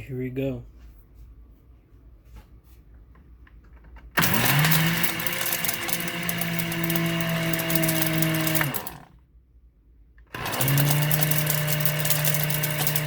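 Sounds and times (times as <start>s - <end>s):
blender running: 4.2s - 9.2s, 10.3s - 13.0s.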